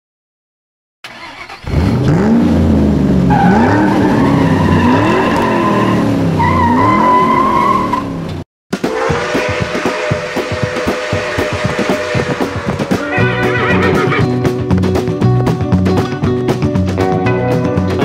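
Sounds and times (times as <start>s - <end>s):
car engine revving: 1.1s - 8.4s
tyres squealing: 3.3s - 8.2s, 8.9s - 14.4s.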